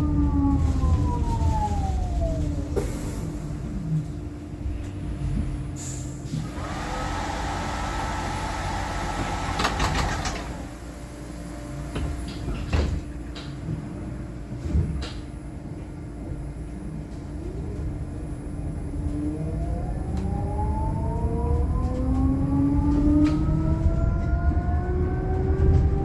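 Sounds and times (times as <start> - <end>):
bus doors air hissing: 5.8 - 11.0.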